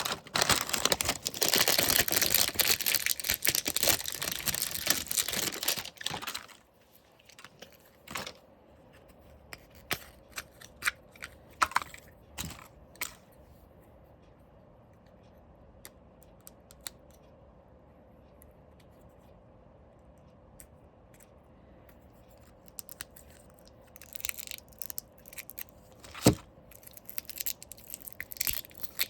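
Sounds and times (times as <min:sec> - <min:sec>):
packaging being torn and crinkled: 0:00.0 - 0:06.6, 0:22.8 - 0:29.0.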